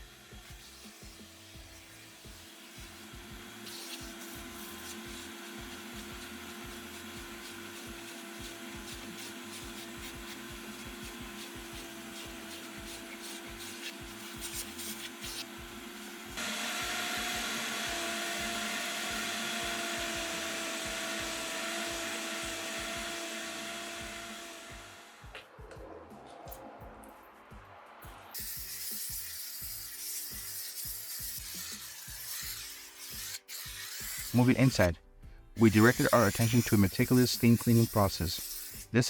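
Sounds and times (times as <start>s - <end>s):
vacuum cleaner running: 0.0s - 25.4s.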